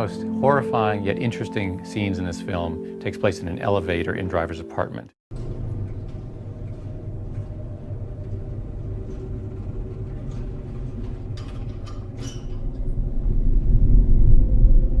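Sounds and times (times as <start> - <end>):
low rumbling drone: 5.3 - 15.0.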